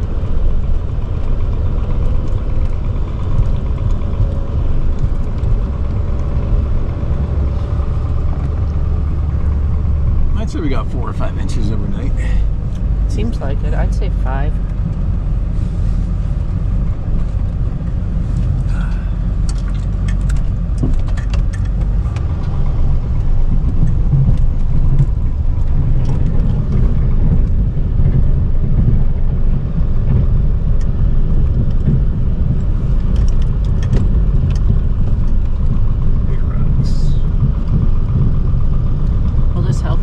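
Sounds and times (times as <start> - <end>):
pickup truck engine rumble: 0.0 - 40.0
light clicks and rattles: 17.1 - 36.3.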